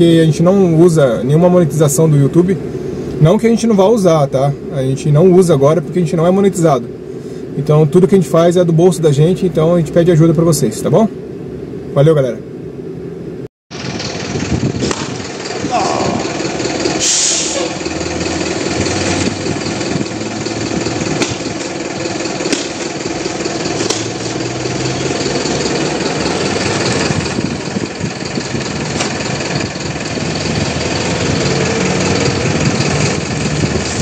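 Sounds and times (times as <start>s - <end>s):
vehicle engine running: 13.7s - 34.0s.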